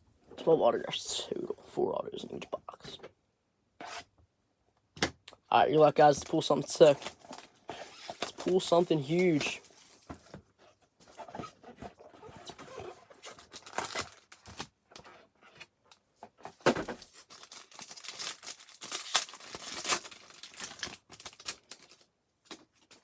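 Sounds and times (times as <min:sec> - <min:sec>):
wrapper tearing and crinkling: 0:06.2 - 0:10.1, 0:12.7 - 0:14.7, 0:17.0 - 0:23.0.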